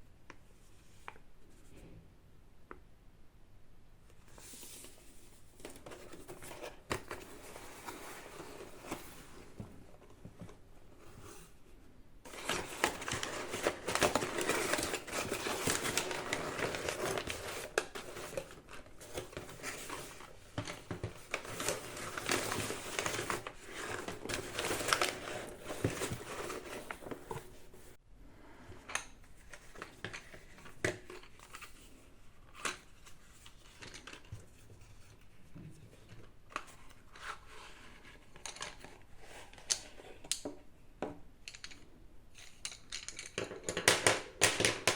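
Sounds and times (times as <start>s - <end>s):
packaging crinkling and tearing: 12.3s - 20.3s.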